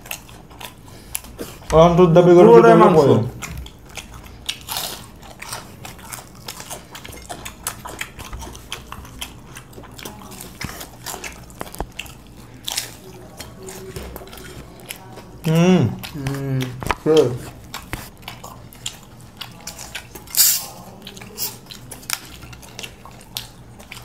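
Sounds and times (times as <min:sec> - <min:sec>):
people chewing fried chicken: 0:00.0 - 0:24.0
wet mouth clicks: 0:20.0 - 0:21.6.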